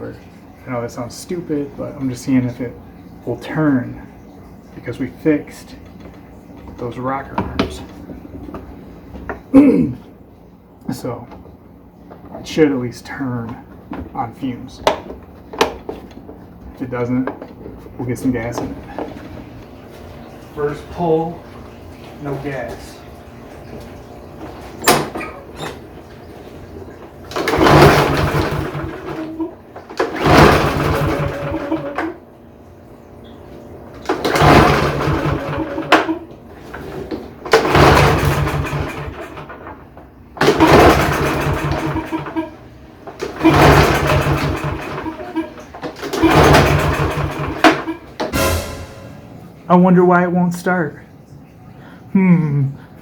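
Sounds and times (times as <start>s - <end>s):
mower engine pull-start cranking: 27.3s - 32.2s, 34.0s - 39.7s, 40.4s - 42.6s, 43.2s - 48.4s.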